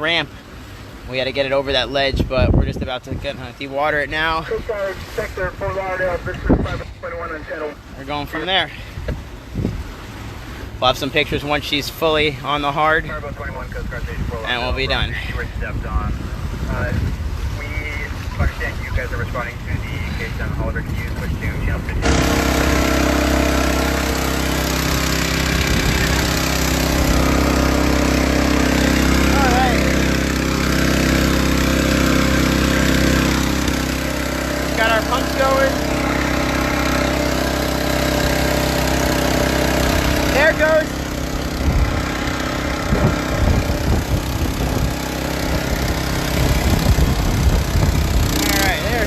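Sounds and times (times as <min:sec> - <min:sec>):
small gasoline engine idling: 0:22.0 - 0:49.0.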